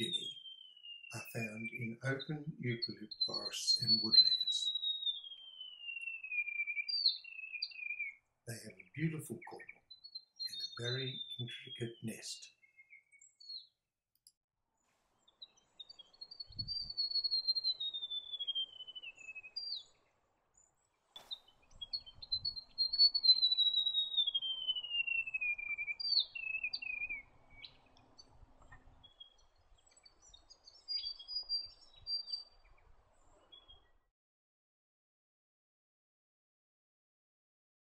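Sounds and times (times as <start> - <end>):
short high bird notes: 0.0 - 4.8
bird singing falling song: 0.0 - 13.7, 15.2 - 34.0.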